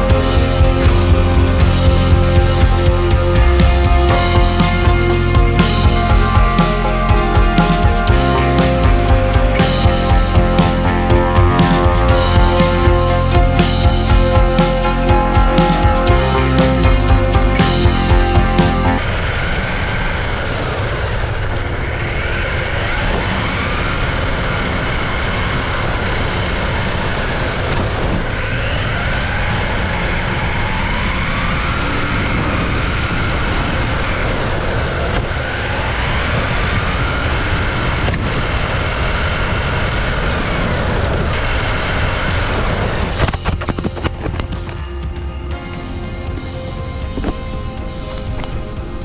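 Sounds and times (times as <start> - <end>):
steady rushing noise: 0.0 - 49.0.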